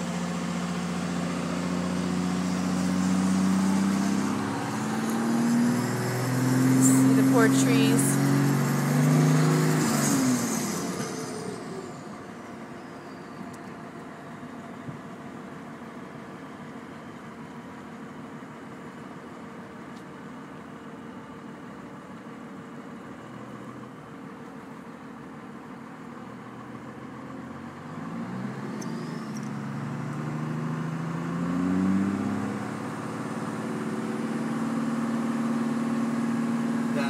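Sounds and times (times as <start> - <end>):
vehicle engine accelerating: 0.0 - 13.8, 26.4 - 37.0.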